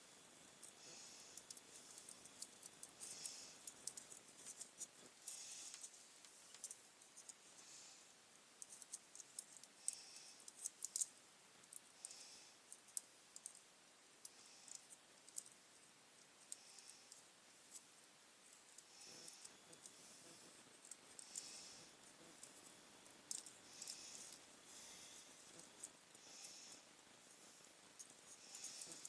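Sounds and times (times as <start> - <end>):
small plastic parts clicking: 8.6 - 13.7, 23.3 - 24.4.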